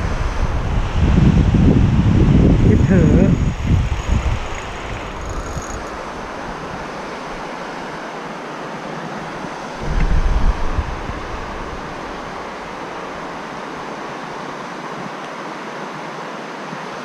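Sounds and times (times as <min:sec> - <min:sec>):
wind buffeting microphone: 0:00.0 - 0:07.9, 0:09.2 - 0:14.4
stream water rushing: 0:00.0 - 0:17.0.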